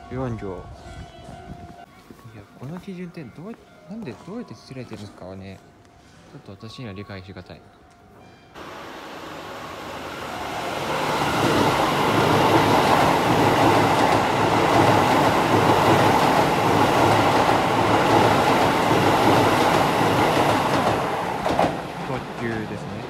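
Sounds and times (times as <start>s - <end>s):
electric train passing at speed: 8.5s - 23.0s.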